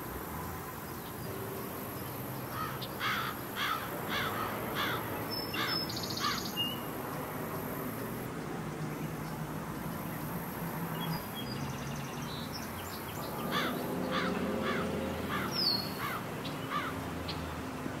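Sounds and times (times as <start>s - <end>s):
birds calling: 2.3s - 7.7s, 9.0s - 17.5s.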